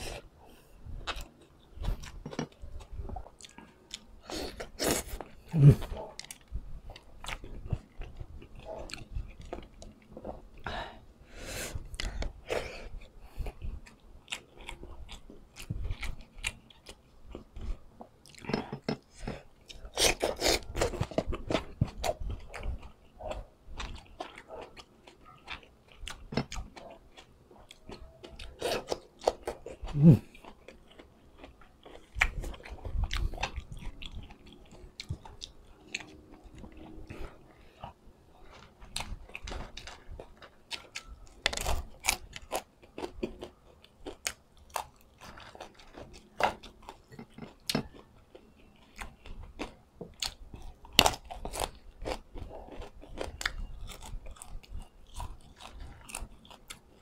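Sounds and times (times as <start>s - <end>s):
crisp chewing crunches: 19.3s - 57.0s.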